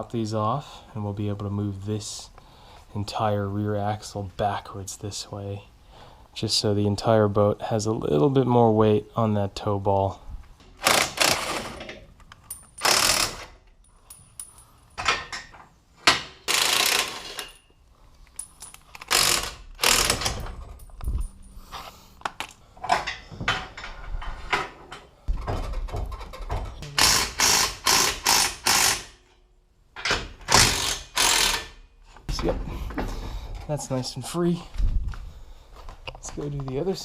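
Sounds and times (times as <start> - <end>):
ratchet wrench clicking: 12.5 - 13.6, 16.5 - 17.6, 18.4 - 20.4, 26.9 - 29.2, 30.5 - 31.8.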